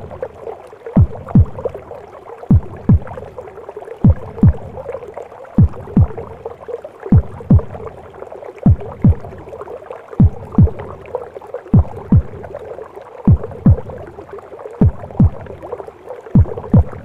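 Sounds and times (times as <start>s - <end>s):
heartbeat thumps: 1.0s - 1.9s, 2.5s - 3.4s, 4.0s - 5.0s, 5.6s - 6.4s, 7.1s - 8.0s, 8.6s - 9.6s, 10.2s - 11.1s, 11.7s - 12.6s, 13.3s - 14.1s, 14.8s - 15.7s, 16.4s - 17.0s.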